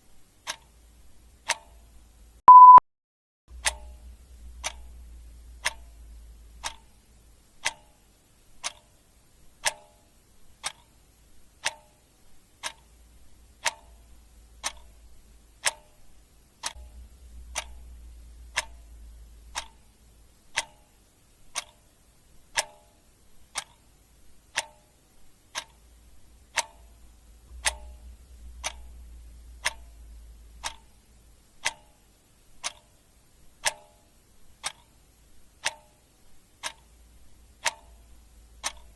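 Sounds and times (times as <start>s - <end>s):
clock ticking: 0.0s - 2.8s, 3.5s - 38.9s
low rumble: 3.5s - 6.6s, 16.8s - 20.2s, 27.0s - 31.4s.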